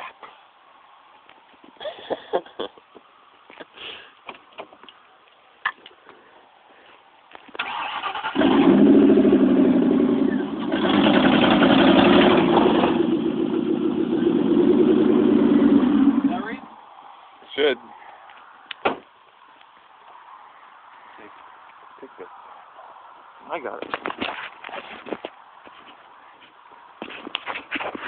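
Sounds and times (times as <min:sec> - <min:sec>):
car engine cranking and revving: 0:07.6 - 0:16.6.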